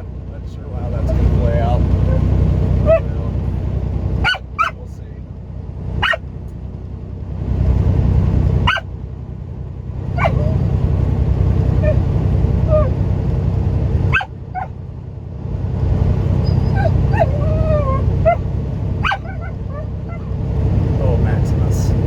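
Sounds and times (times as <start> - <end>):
truck engine rumbling: 0.0 - 22.0
dog whining and yipping: 2.0 - 3.1, 4.2 - 4.8, 6.0 - 6.2, 8.6 - 8.8, 10.2 - 10.7, 11.8 - 12.0, 12.7 - 13.0, 14.1 - 14.7, 16.4 - 18.4, 19.0 - 20.4.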